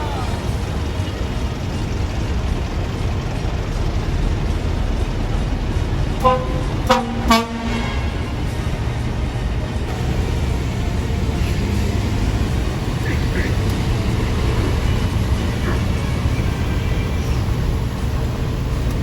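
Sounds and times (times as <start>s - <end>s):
street traffic rumble: 0.0s - 19.0s
car horn toots: 6.2s - 8.7s.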